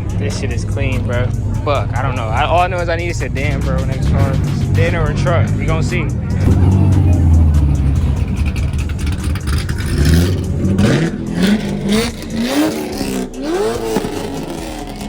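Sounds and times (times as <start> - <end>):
deep engine rumble: 0.4 - 13.4
car engine revving: 3.5 - 15.0.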